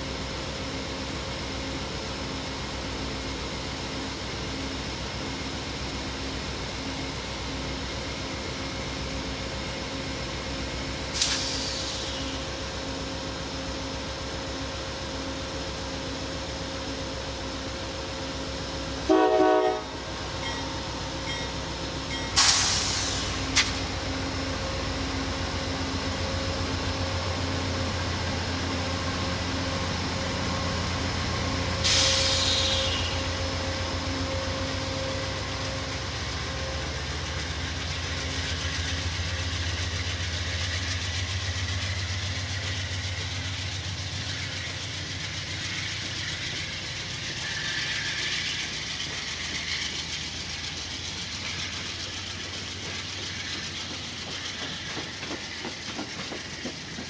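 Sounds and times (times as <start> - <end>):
diesel locomotive engine running: 0.0 - 57.0
train cars rolling on rails: 0.0 - 57.0
train horn blast: 19.0 - 20.1.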